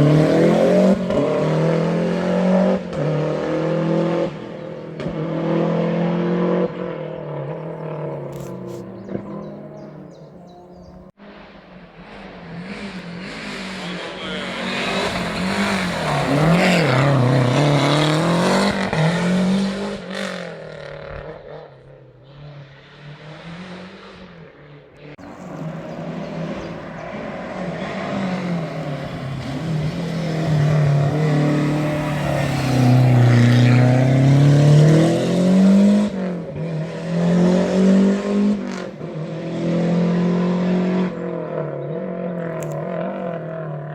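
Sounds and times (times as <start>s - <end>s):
car engine revving: 0.0s - 43.9s
engine throttle blips: 6.0s - 11.2s.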